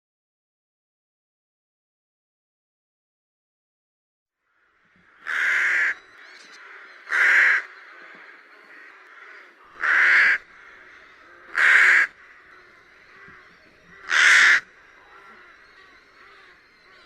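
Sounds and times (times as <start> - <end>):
rook cawing: 4.4 - 17.0.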